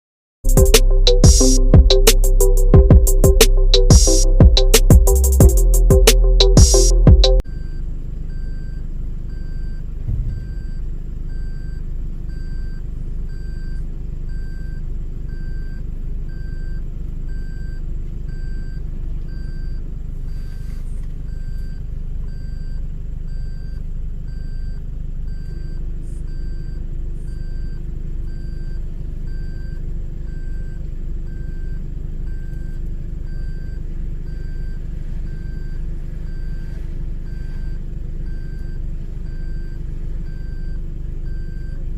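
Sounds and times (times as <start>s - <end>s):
vehicle engine rumbling: 0.4s - 23.3s, 23.9s - 41.9s
high electronic beeps: 0.5s - 7.4s, 10.1s - 10.9s
brief knock: 10.0s - 10.9s.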